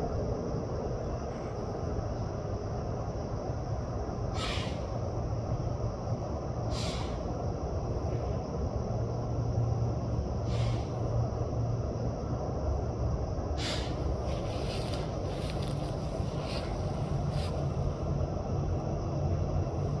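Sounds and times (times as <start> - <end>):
low rumbling hum: 0.0 - 20.0
short hissing rustles: 13.6 - 17.7.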